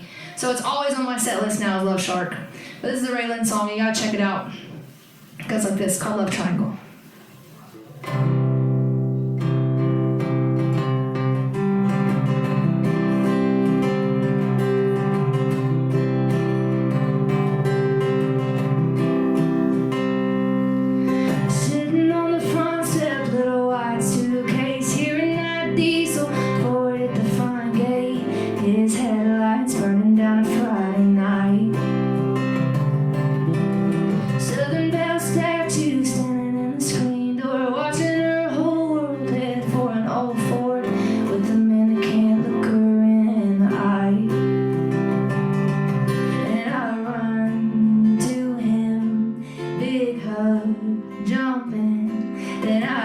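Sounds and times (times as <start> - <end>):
strummed acoustic guitar: 7.0 - 53.0
woman singing: 20.6 - 32.7, 34.1 - 53.0.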